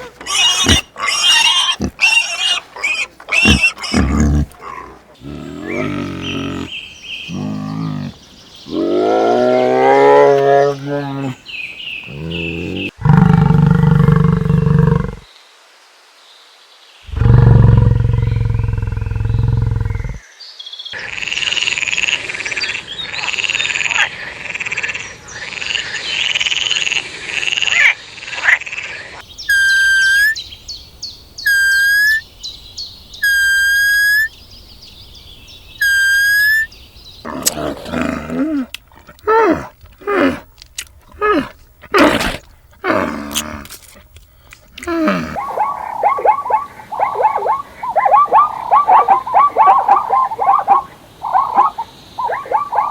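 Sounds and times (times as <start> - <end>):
rapid high-pitched animal calls: 0.0 - 6.7, 29.4 - 30.4, 31.4 - 32.2, 33.2 - 34.3, 35.8 - 37.5, 45.1 - 52.9
deep animal calls: 0.0 - 11.4, 12.1 - 15.2, 33.2 - 34.3, 35.8 - 43.7, 44.8 - 52.9.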